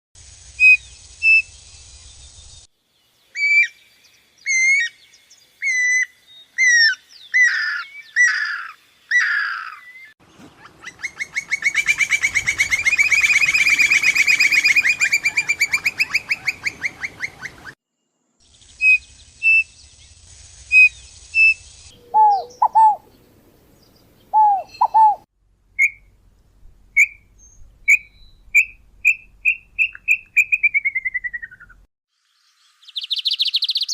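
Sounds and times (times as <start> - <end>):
fast bird trill: 10.6 - 17.4, 20.8 - 23.0, 24.4 - 25.2
low paired bird notes: 21.9 - 25.2
short bird notes speeding up: 24.3 - 25.2
sliding whistled bird notes: 24.4 - 25.2, 27.0 - 31.8.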